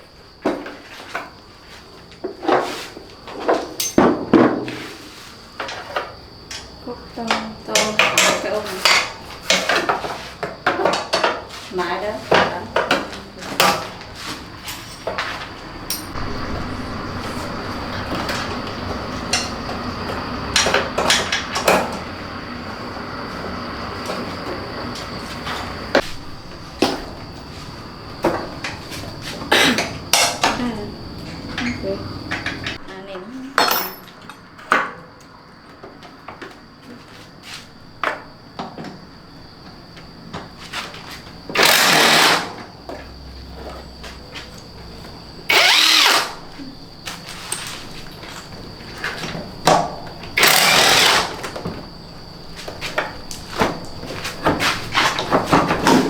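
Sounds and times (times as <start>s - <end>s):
steady background hum: 0.0s - 56.0s
metal tools clinking and clattering: 3.5s - 4.2s, 14.6s - 16.6s, 33.6s - 34.5s
power driver whirring: 41.6s - 42.5s, 45.5s - 46.5s, 50.4s - 51.5s.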